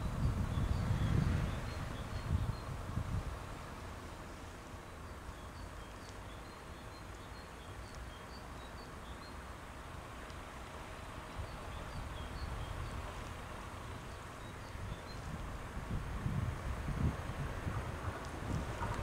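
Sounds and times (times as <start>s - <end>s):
low wind rumble: 0.0s - 6.8s, 7.4s - 19.0s
small birds chirping: 4.8s - 9.4s, 11.2s - 15.3s.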